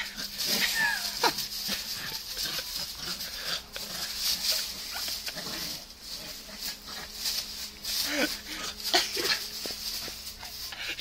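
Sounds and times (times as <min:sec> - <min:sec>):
dog yelps: 0:00.0 - 0:01.4
dog growls: 0:00.0 - 0:07.2
dogs fighting in mud: 0:00.0 - 0:11.0.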